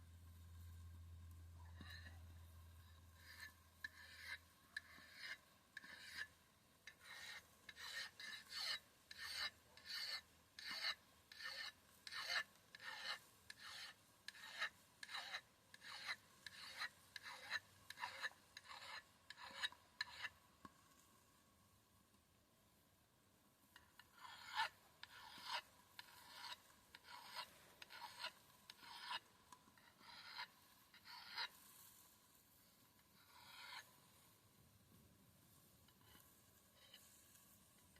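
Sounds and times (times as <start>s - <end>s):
axe blade sharpening strokes: 3.2s - 6.3s, 6.9s - 20.3s, 24.2s - 29.2s, 29.8s - 31.6s, 33.2s - 33.9s.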